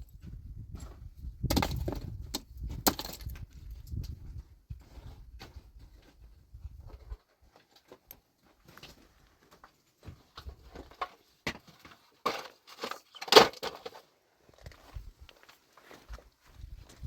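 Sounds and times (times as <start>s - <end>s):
hard objects clattering and knocking: 1.5s - 3.5s.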